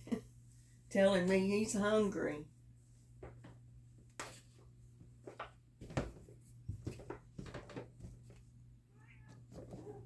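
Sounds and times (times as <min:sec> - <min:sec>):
faint cat meow: 0:08.9 - 0:10.0.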